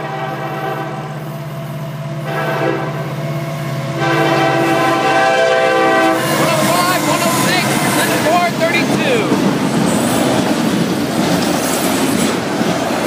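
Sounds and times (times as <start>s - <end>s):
locomotive air horn blasts: 0.0s - 1.3s, 2.2s - 3.1s, 3.9s - 8.3s
diesel locomotives running: 0.0s - 13.0s.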